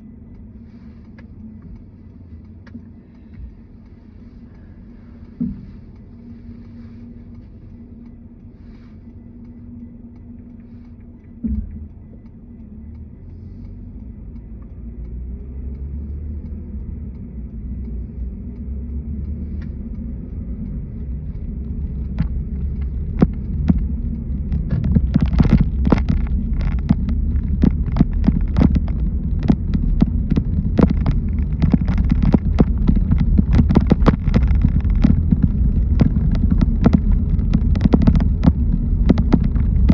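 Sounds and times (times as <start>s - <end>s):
car road rumble: 0.0s - 39.9s
sharp taps or knocks: 21.4s - 39.9s.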